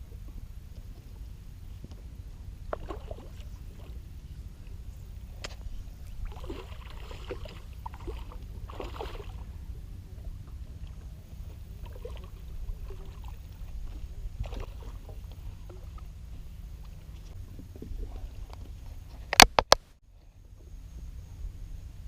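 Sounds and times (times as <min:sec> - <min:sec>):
water lapping against boat hull: 0:00.0 - 0:21.1
low rumble: 0:00.0 - 0:22.0
light splashes: 0:02.6 - 0:19.5.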